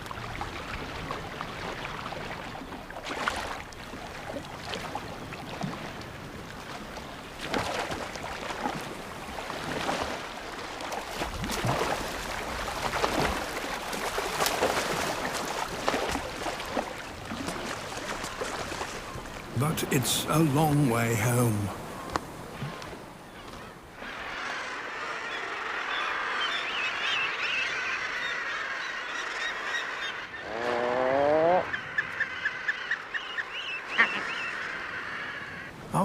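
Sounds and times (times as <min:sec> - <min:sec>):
sea water splashing: 0:00.0 - 0:24.3.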